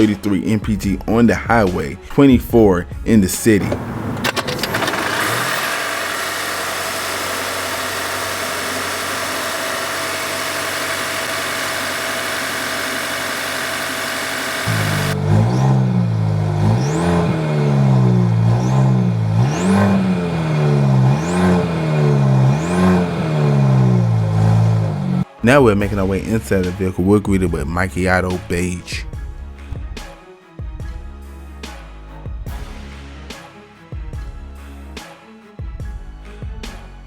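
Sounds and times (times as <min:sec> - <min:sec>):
car engine idling with hiss: 0:03.6 - 0:15.3
car engine revving: 0:03.6 - 0:25.3.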